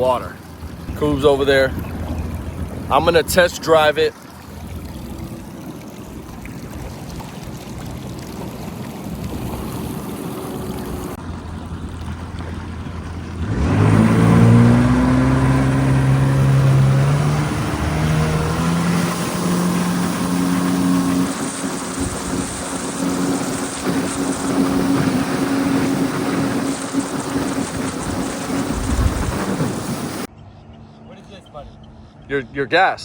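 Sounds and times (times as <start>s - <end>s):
jet ski engine running: 0.0s - 30.3s.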